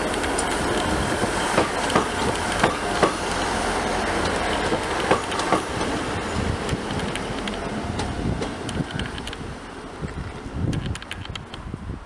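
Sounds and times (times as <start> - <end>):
train wheels clicking over rail joints: 0.0 - 9.5
train running rumble: 0.0 - 11.7.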